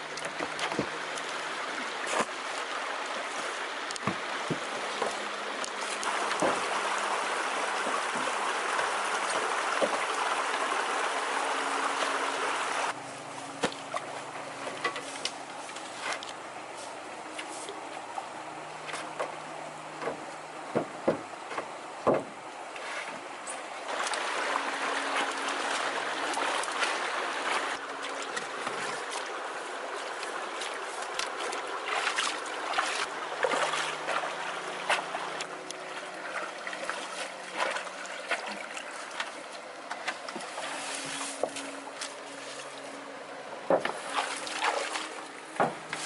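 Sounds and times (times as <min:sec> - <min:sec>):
water running and splashing: 0:00.0 - 0:13.0, 0:23.9 - 0:42.9, 0:43.9 - 0:46.0.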